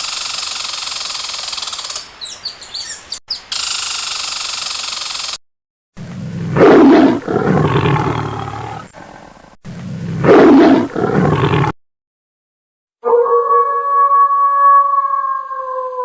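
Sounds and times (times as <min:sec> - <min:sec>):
big cat roaring: 0:06.0 - 0:11.8.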